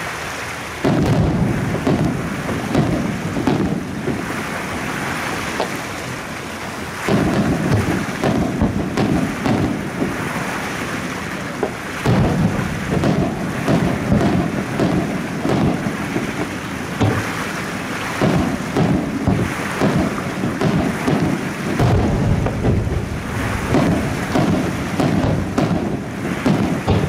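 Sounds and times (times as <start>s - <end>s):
fireworks crackle: 0.0s - 27.0s
fireworks booming: 0.8s - 27.0s.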